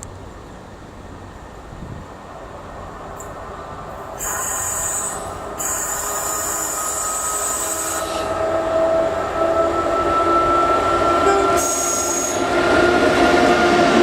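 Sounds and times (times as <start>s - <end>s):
train approaching: 0.0s - 14.0s
wheels squealing on rails: 4.0s - 14.0s.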